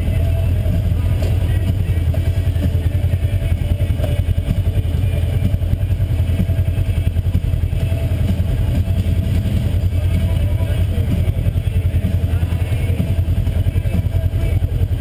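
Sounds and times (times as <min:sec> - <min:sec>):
vehicle engine droning: 0:00.0 - 0:15.0.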